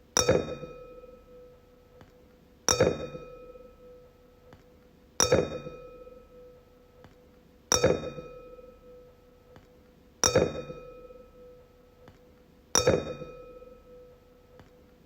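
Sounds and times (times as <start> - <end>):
wine glass tapped ringing: 0.2 - 1.5, 2.7 - 4.0, 5.2 - 6.6, 7.7 - 9.0, 10.2 - 11.6, 12.8 - 14.1.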